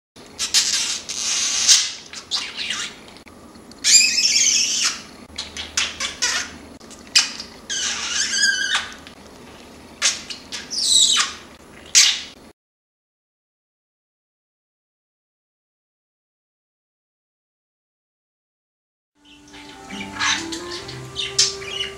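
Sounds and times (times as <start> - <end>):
budgerigar chattering and warbling: 3.8 - 6.6, 7.2 - 9.0, 10.0 - 12.3, 19.6 - 21.9.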